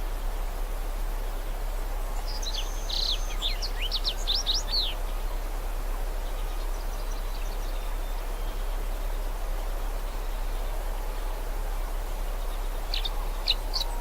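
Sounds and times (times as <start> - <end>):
outdoor background hiss: 0.0 - 14.0
songbird twittering: 2.1 - 5.3, 6.2 - 14.0.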